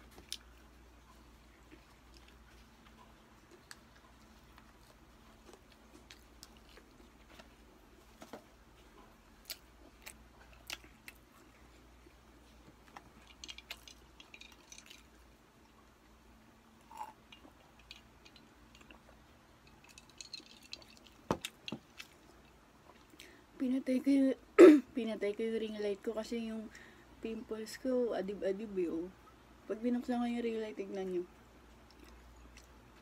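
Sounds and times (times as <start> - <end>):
chewing with wet smacks: 0.0 - 15.9, 16.9 - 23.3, 31.7 - 33.0.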